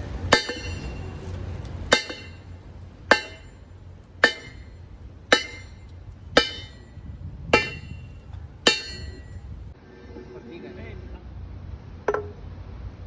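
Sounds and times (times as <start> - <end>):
low steady hum: 0.0 - 13.0
metal-on-metal strikes: 0.3 - 1.2, 1.9 - 9.4.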